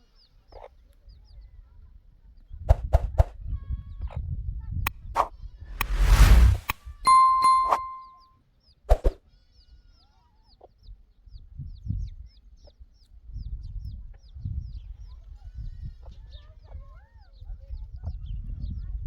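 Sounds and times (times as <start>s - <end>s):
low rumbling noise: 5.8s - 6.8s.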